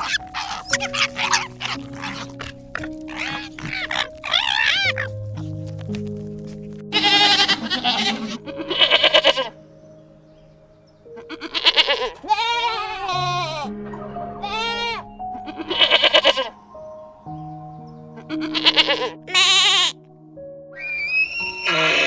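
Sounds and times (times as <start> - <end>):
quavering bleat-like animal calls: 0.0 - 5.5, 6.9 - 9.7, 11.1 - 16.8, 18.2 - 20.0, 20.8 - 22.0
soft background music: 0.0 - 22.0.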